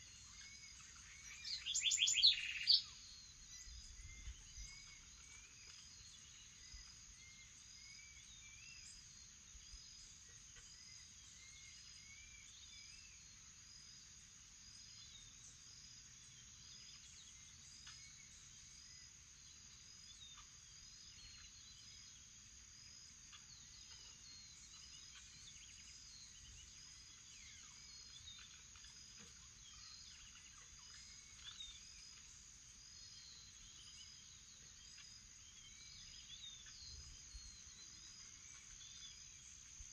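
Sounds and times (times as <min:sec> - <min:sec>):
bird chirps and whistled calls: 0:00.5 - 0:05.0.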